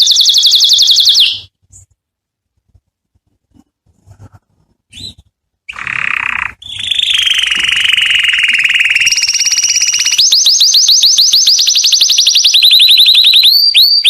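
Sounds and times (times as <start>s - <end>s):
canary singing: 0.0s - 1.5s, 4.9s - 14.0s.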